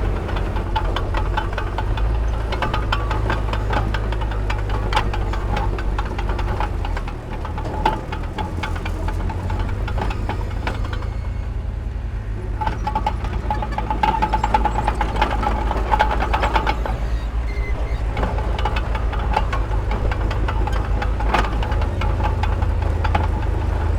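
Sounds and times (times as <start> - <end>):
rapid metallic clanking: 0.0 - 11.5, 12.4 - 23.9
diesel machinery engine drone: 0.0 - 23.9.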